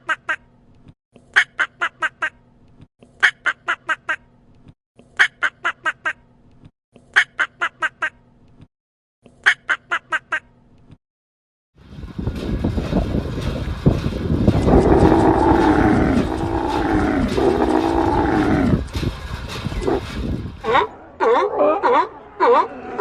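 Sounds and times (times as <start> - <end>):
cow mooing: 14.6 - 18.9, 19.8 - 20.0.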